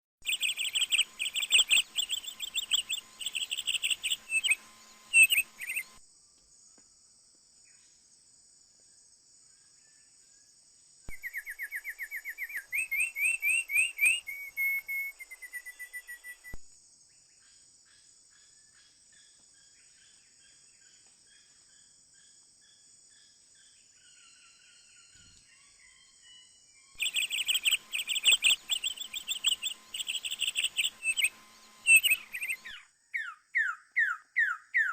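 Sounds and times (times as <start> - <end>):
bird chirping rapidly: 0.2 - 6.0, 11.1 - 16.6, 27.0 - 34.9
high insect drone: 0.3 - 25.5, 27.0 - 32.8.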